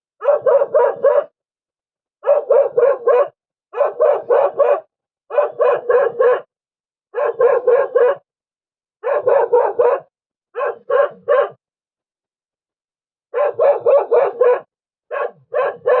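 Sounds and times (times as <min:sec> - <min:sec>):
dog barking: 0:00.2 - 0:01.4, 0:02.2 - 0:06.5, 0:07.1 - 0:08.3, 0:09.0 - 0:11.6, 0:13.3 - 0:16.0.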